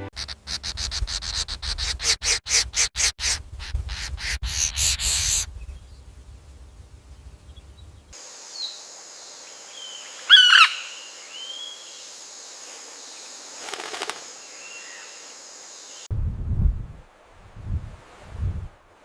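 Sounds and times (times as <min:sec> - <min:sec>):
bird calls: 0:00.2 - 0:06.0, 0:09.8 - 0:12.1
steady high hiss: 0:04.4 - 0:16.1
low rumble: 0:16.1 - 0:18.8.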